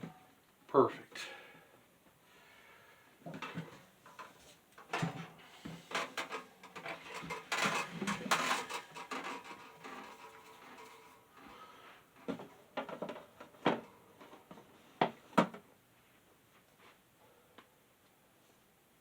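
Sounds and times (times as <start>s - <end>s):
fan parts clicking and rattling: 3.2s - 15.7s.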